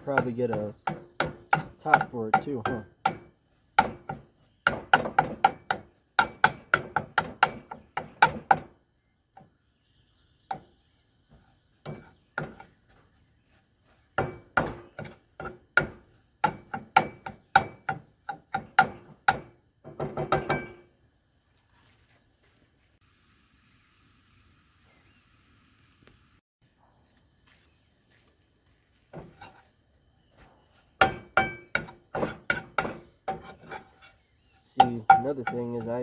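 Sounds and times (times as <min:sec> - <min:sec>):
metal spatula tapping in frying pan: 0:00.2 - 0:08.7, 0:34.8 - 0:35.7.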